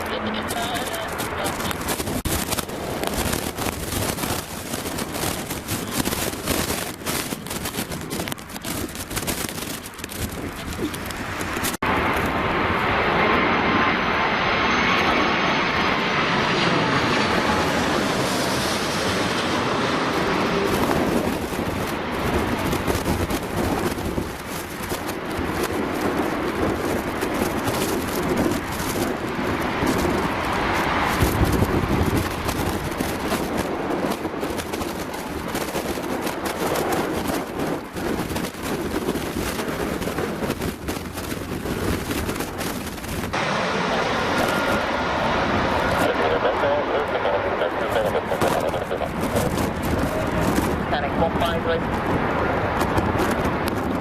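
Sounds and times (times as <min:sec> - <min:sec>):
jet airliner engines roaring: 0:00.0 - 0:54.0
wind buffeting microphone: 0:00.0 - 0:54.0
faint whine drifting in pitch: 0:42.0 - 0:54.0.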